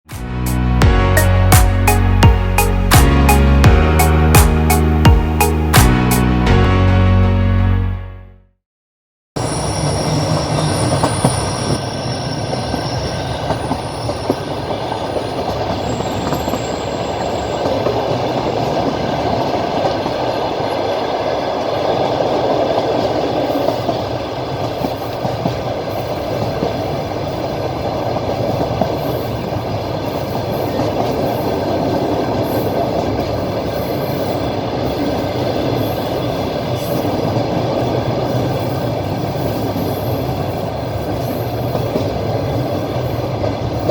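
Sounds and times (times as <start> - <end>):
train rolling rumble: 9.4 - 43.9
wheels clickety-clack on rails: 9.4 - 43.9.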